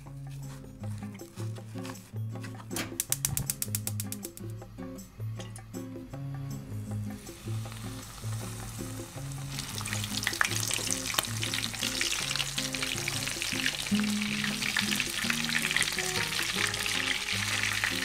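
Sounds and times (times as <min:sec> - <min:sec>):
background music: 0:00.0 - 0:18.0
cutlets sizzling in oil: 0:07.1 - 0:18.0.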